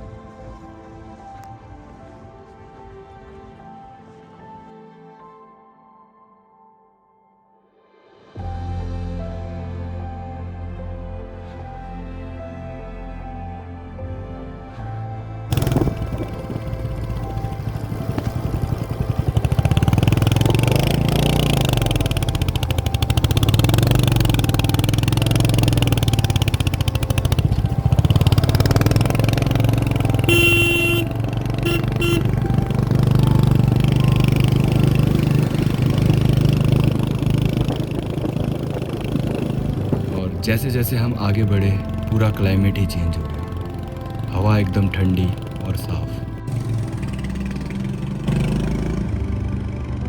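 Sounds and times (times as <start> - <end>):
horn honking: 15.5 - 49.1
motorcycle engine revving: 15.5 - 50.0.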